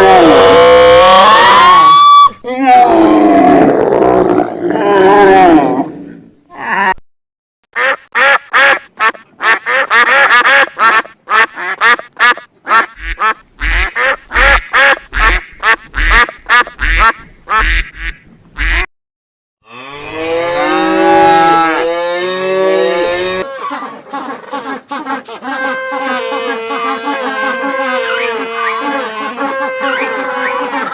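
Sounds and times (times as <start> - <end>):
duck quacking: 7.8 - 18.9, 23.4 - 30.9
cow mooing: 19.6 - 23.4.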